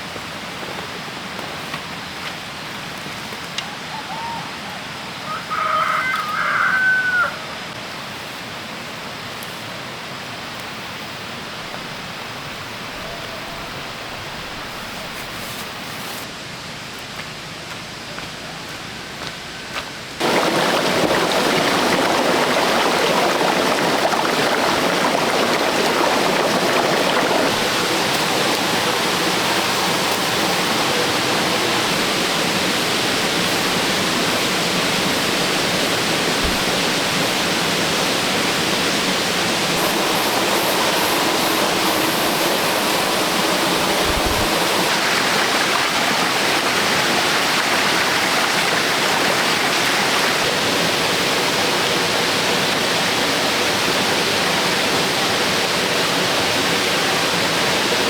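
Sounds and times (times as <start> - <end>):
rushing water: 0.0 - 15.9, 20.0 - 58.0
rooster crowing: 3.9 - 7.6.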